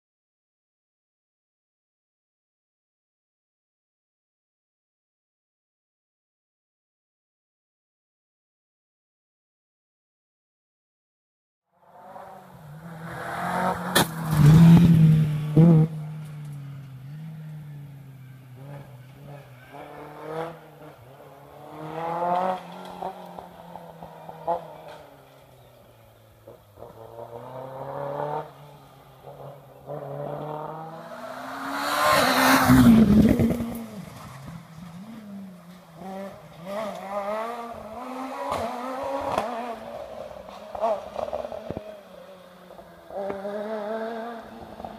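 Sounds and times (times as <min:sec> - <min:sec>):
rally cars revving past: 0:11.8 - 0:44.9.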